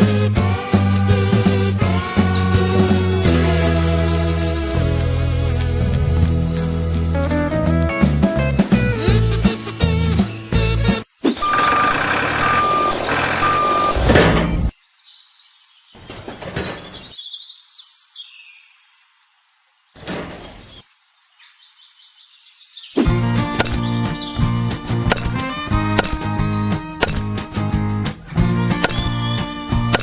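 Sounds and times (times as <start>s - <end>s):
background music: 0.0s - 11.1s, 23.1s - 30.0s
reversing alarm beeps: 11.4s - 14.1s.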